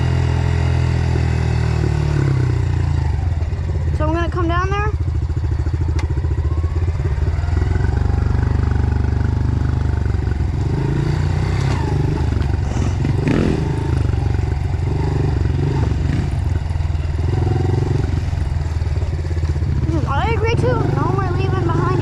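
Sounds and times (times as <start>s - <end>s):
dirt bike engine running: 0.0s - 22.0s
clatter and scraping: 11.6s - 13.5s.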